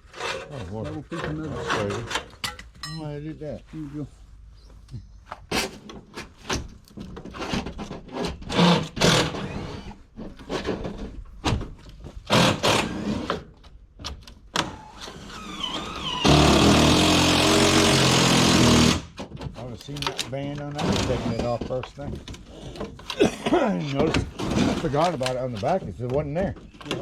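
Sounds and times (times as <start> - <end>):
metal siding clanking and scraping: 0.0 - 3.1, 5.4 - 27.0
loud power tool running: 15.0 - 19.1.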